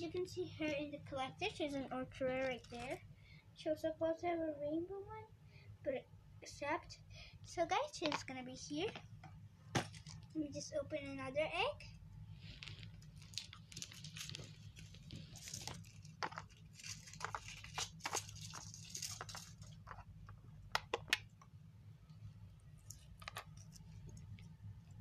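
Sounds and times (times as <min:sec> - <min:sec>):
steady low hum: 0:00.0 - 0:25.0
foil wrapper tearing and crinkling: 0:02.4 - 0:03.0, 0:12.6 - 0:20.0.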